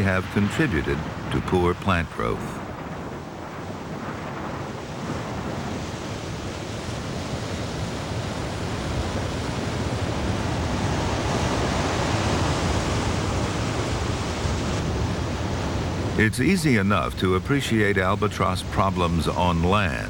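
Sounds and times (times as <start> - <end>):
strong wind blowing: 0.0 - 20.0.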